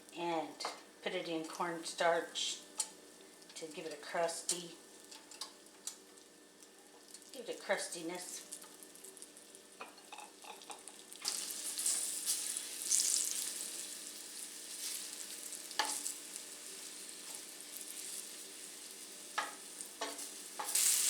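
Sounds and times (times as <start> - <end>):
meat sizzling in hot oil: 8.3 - 21.0.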